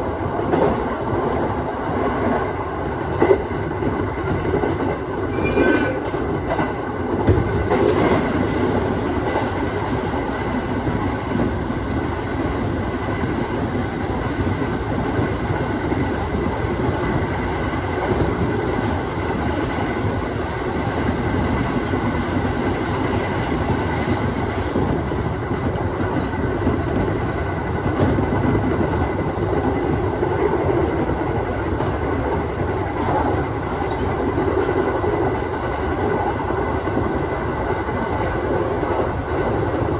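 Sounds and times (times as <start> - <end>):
train running noise: 0.0 - 39.9
high wheel squeal: 5.2 - 6.1.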